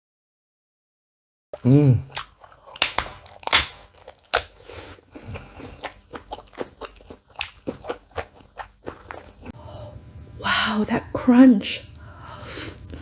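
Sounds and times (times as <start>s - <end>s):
person humming: 1.6s - 2.1s
crunchy food bites: 1.6s - 4.7s
wet chewing clicks: 5.1s - 9.6s.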